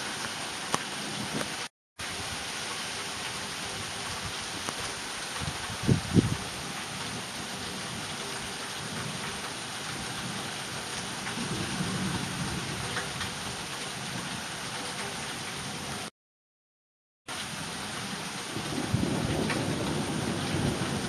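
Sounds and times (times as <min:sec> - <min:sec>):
steady rain falling: 0:00.0 - 0:16.1, 0:17.3 - 0:21.0
thunder rumble: 0:18.5 - 0:21.0.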